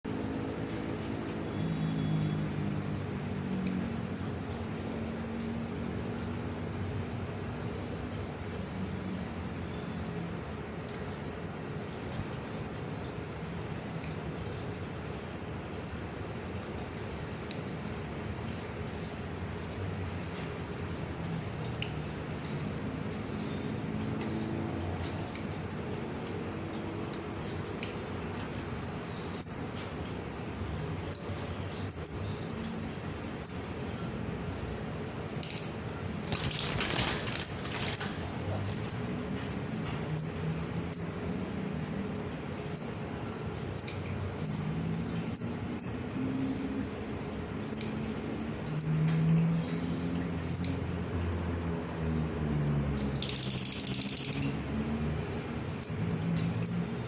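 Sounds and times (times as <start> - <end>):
small bird chirping: 29.1 - 29.9, 31.1 - 33.9, 35.4 - 39.2, 40.2 - 41.3, 43.7 - 46.2, 53.2 - 54.7, 55.7 - 57.0.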